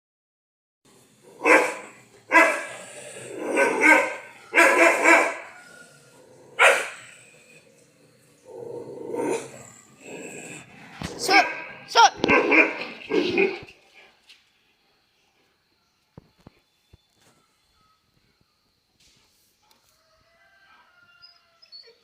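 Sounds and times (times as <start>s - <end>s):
dog barking: 1.4s - 2.8s, 3.4s - 5.6s, 6.6s - 7.1s, 11.2s - 13.7s.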